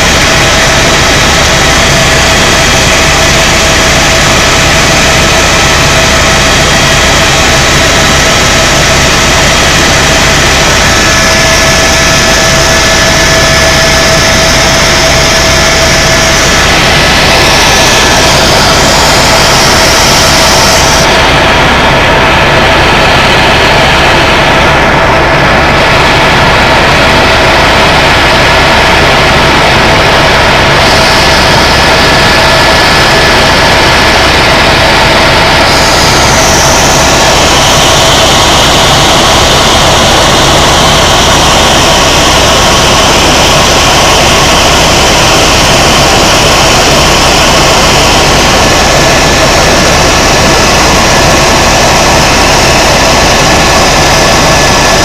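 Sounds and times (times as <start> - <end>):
helicopter turbine and rotors droning: 0.0 - 55.0.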